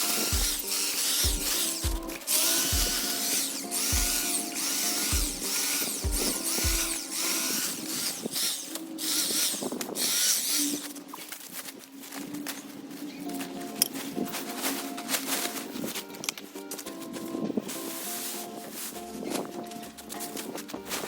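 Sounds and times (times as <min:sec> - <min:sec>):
background music with beat: 0:00.0 - 0:07.9, 0:13.3 - 0:21.0
electric hedge trimmer buzzing: 0:00.0 - 0:20.8.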